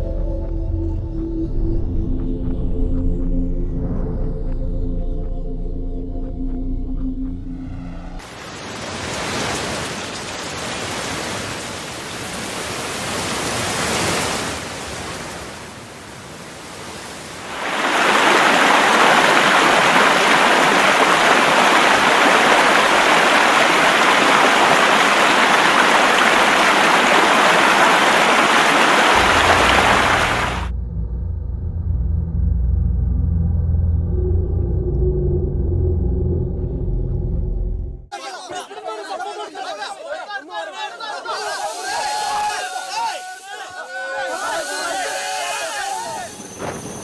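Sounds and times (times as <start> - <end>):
rushing floodwater: 8.2 - 30.7.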